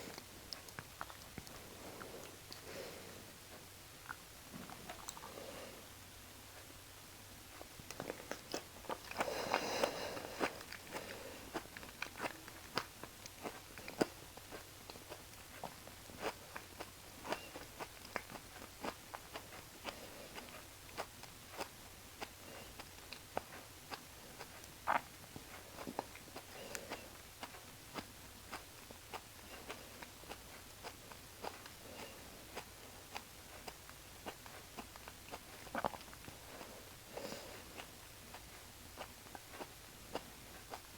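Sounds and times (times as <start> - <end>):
person chewing: 0.0 - 6.7, 7.5 - 40.9
wet mouth clicks: 4.0 - 5.4, 24.4 - 27.0.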